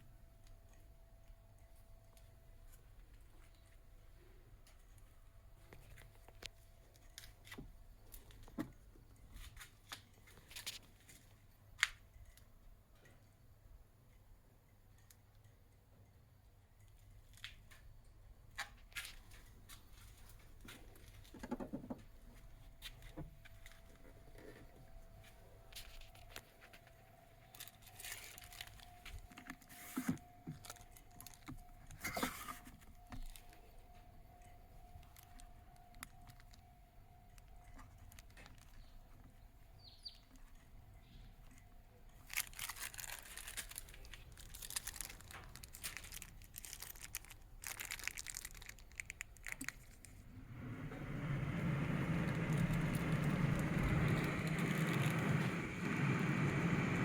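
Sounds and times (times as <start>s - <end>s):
electric fan whine: 50.0s - 57.0s.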